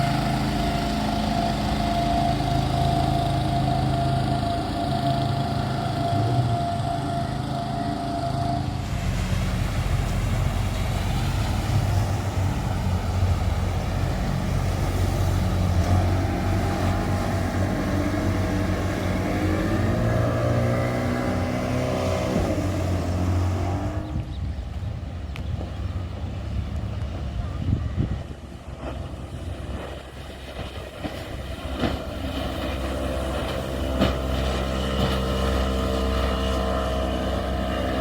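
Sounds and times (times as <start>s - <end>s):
engine running: 0.0s - 38.0s.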